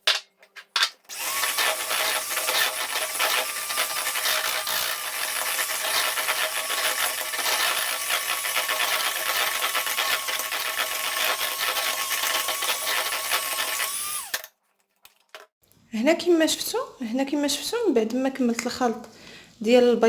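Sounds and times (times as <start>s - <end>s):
electric mixer motor whine: 1.1s - 14.5s.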